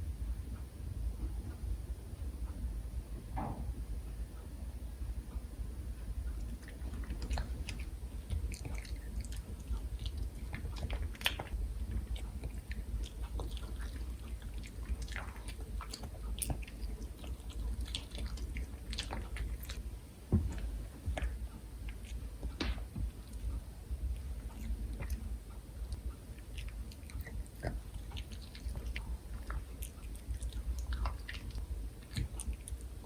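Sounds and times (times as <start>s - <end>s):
dog chewing crunchy food: 6.4s - 25.4s, 26.2s - 33.0s.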